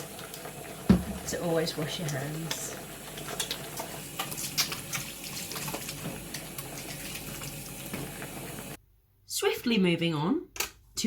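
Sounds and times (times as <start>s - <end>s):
tap running: 0.2s - 8.8s.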